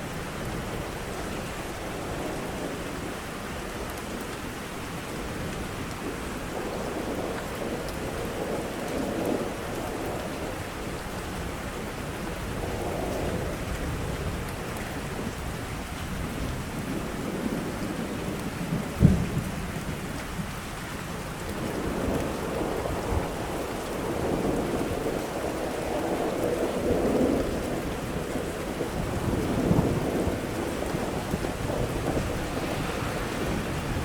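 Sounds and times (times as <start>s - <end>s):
steady rain: 0.0s - 34.0s
low rolling thunder rumbles: 0.1s - 14.4s, 15.0s - 34.0s
sharp thunderclap: 28.9s - 34.0s.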